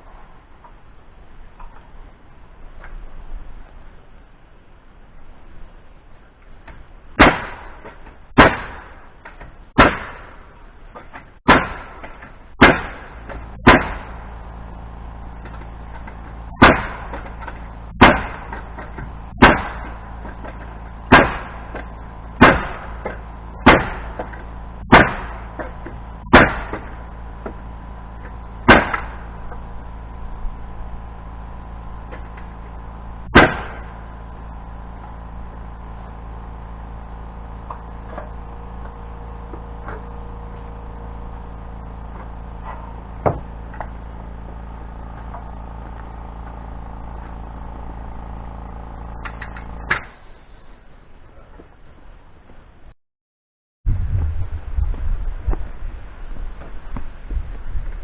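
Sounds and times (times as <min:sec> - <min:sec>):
steady low hum: 0:00.0 - 0:53.0, 0:53.9 - 0:58.0.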